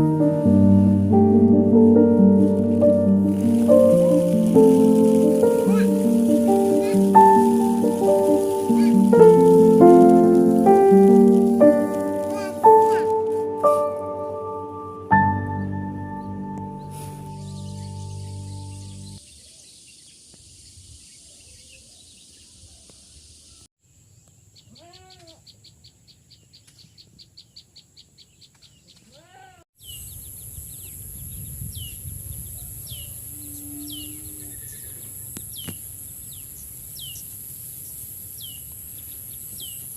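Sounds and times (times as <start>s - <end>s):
falling chirps: 0.0s - 19.2s
birds chirping: 1.1s - 23.7s, 29.8s - 39.9s.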